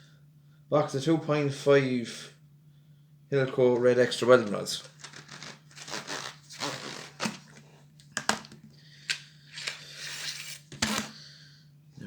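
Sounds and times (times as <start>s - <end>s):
cardboard tearing and rustling: 4.8s - 8.5s.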